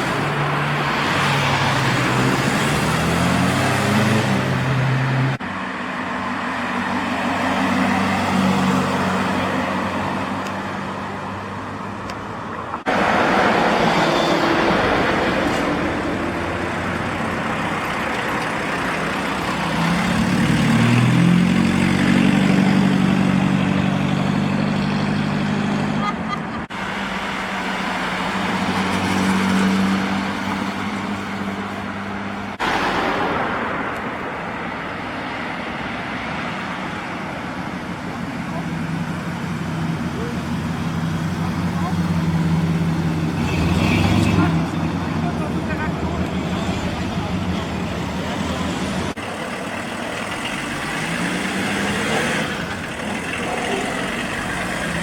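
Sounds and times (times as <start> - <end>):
car engine revving: 0.0 - 5.4, 12.8 - 26.1, 38.2 - 55.0
car engines running: 0.0 - 55.0.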